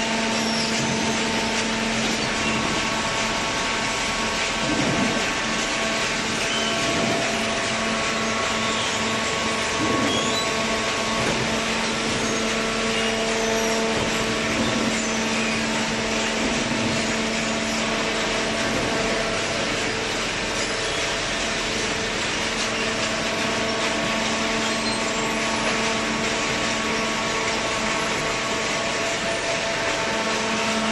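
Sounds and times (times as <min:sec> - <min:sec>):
hydraulic baler humming and hissing: 0:00.0 - 0:30.9.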